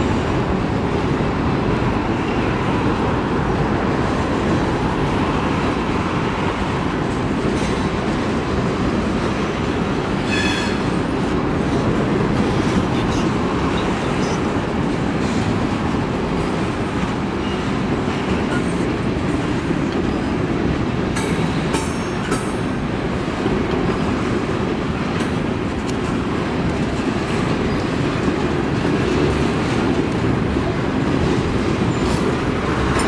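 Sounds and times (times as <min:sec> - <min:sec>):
freight cars rumbling on rails: 0:00.0 - 0:33.0
high wheel squeal: 0:10.2 - 0:10.9.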